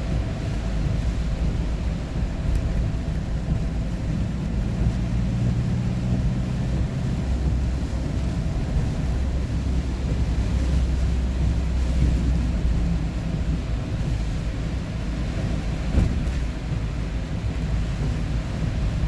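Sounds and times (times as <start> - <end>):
tyre noise on road: 0.0 - 19.0
vehicle engine rumble: 0.0 - 19.0.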